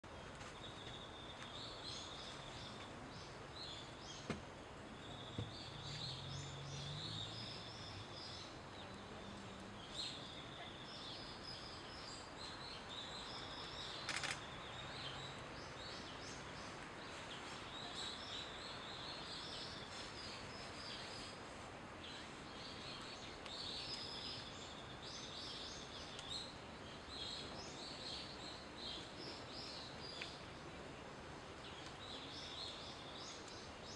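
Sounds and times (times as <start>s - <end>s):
steady outdoor hiss: 0.0s - 33.9s
sharp clicks: 14.0s - 14.5s.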